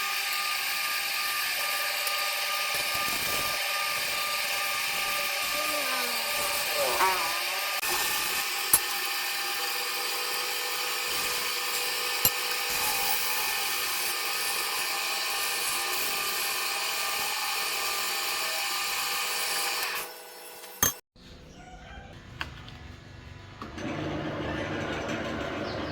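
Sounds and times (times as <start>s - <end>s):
wood lathe whining: 0.0s - 20.7s.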